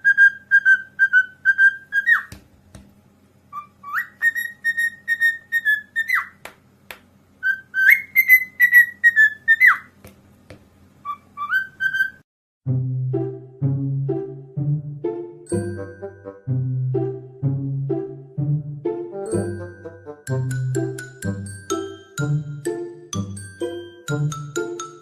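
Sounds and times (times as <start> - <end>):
parrot whistling: 0.0 - 2.3, 3.5 - 6.4, 7.4 - 9.9, 11.0 - 12.2.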